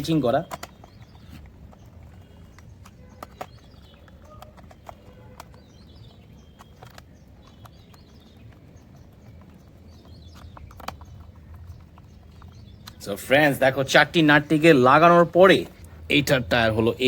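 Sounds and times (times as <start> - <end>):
screwdriver clicking on plastic: 0.0 - 13.0.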